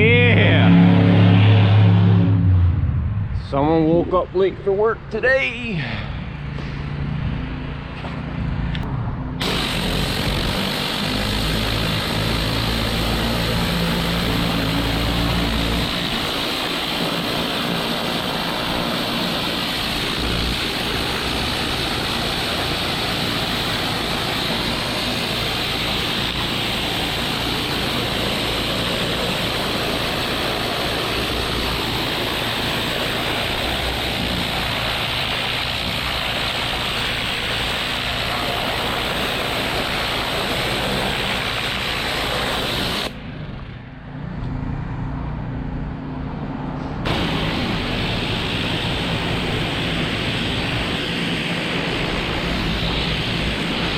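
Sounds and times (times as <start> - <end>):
high-pressure water spray hiss: 9.4 - 43.2, 47.1 - 53.9
pressure washer engine running: 9.4 - 43.2, 47.1 - 53.9.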